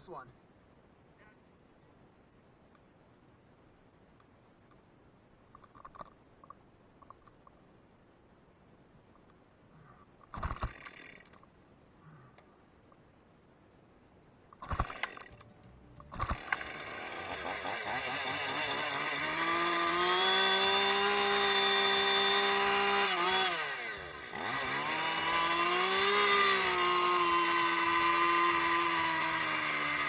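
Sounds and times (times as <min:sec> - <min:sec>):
chainsaw pull cord: 0:14.6 - 0:15.4, 0:16.1 - 0:30.0
chainsaw revving: 0:16.2 - 0:30.0.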